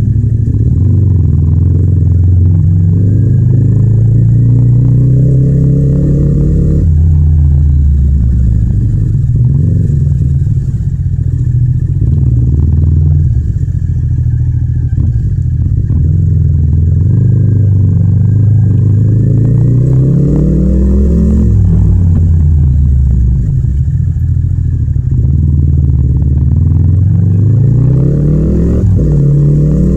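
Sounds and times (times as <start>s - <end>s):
motorcycle engine under load: 0.0s - 29.9s.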